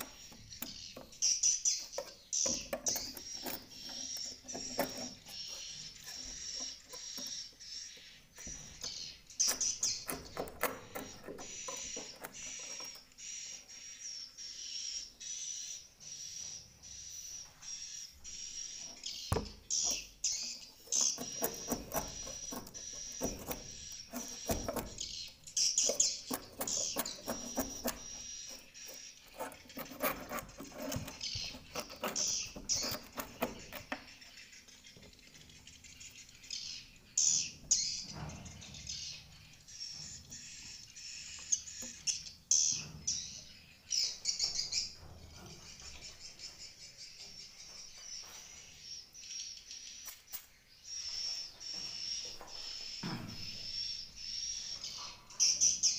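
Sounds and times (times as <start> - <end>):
swiftlets twittering and chirping: 18.3 - 38.0.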